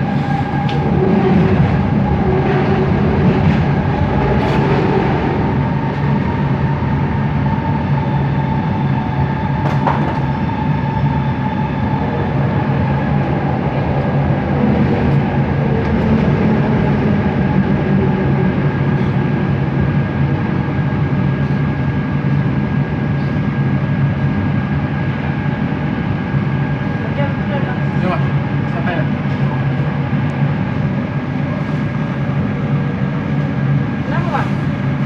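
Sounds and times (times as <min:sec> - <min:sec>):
train rumble: 0:00.0 - 0:35.0.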